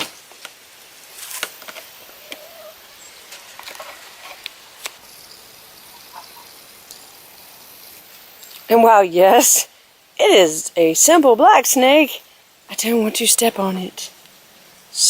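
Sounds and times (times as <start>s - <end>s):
hens murmuring: 1.7s - 9.6s.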